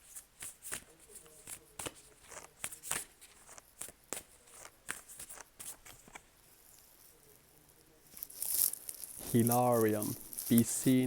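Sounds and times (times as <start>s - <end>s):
cards clicking and slapping: 0.4s - 6.2s.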